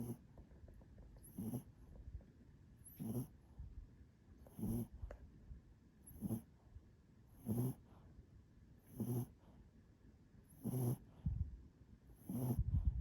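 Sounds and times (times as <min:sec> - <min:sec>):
dog snoring: 0:00.0 - 0:00.3, 0:01.2 - 0:01.8, 0:02.8 - 0:03.4, 0:04.4 - 0:05.0, 0:06.1 - 0:06.6, 0:07.3 - 0:08.0, 0:08.8 - 0:09.4, 0:10.5 - 0:11.4, 0:12.1 - 0:13.0
low rumble: 0:12.6 - 0:13.0.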